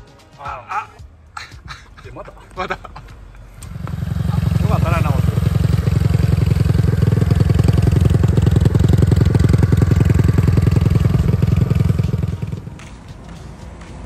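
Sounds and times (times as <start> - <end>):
motorcycle engine idling: 3.6 - 12.9.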